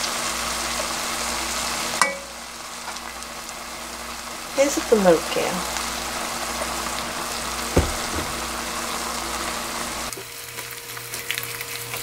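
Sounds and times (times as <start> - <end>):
food sizzling in a wok: 0.0 - 12.0
knock on wok: 7.7 - 8.6.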